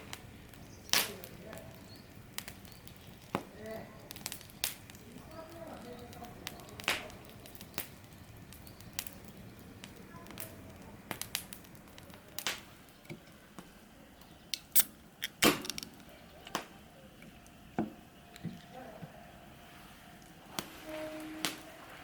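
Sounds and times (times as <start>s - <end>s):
sharp clicks and knocks: 14.5s - 18.6s.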